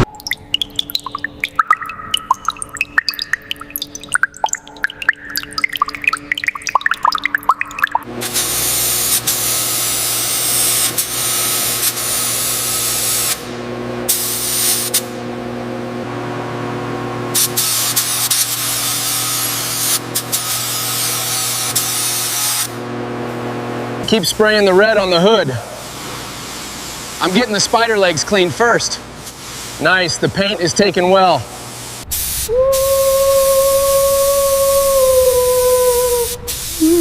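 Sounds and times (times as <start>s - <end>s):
water dripping: 0.0s - 8.1s
steady low hum: 31.4s - 37.0s.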